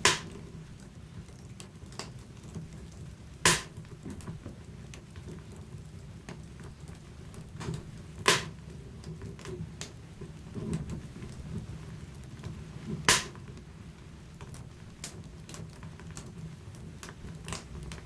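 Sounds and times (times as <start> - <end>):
loud sharp pops of fire: 0.0 - 0.5, 3.4 - 4.0, 7.6 - 8.7, 12.8 - 13.5
fire crackling: 0.0 - 18.0
fire flames rumbling: 0.0 - 18.0.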